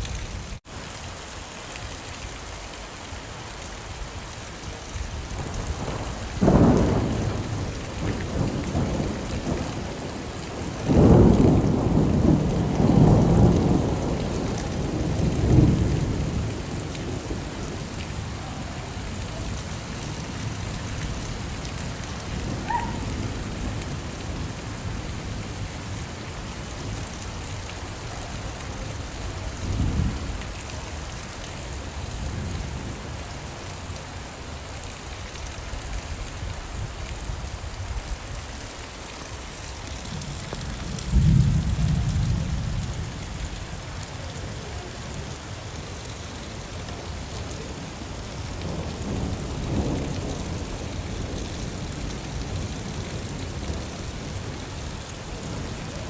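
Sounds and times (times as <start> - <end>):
steady rain: 0.0 - 56.0
thunder rumbling: 5.2 - 26.2, 40.0 - 43.3.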